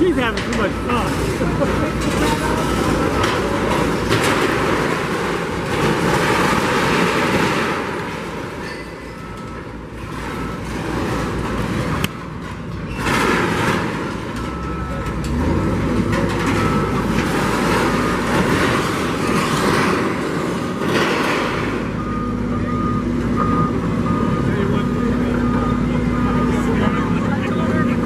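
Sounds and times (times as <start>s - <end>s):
demolition machinery running: 0.0s - 28.0s
structure crashing and breaking: 0.1s - 22.2s
repeated beeping tone: 21.8s - 27.9s.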